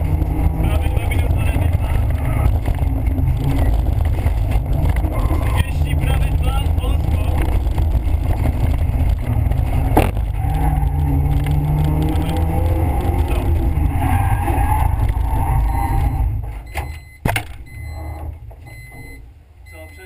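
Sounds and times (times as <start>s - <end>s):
car engine revving high: 0.0s - 16.4s
road noise: 0.0s - 20.0s.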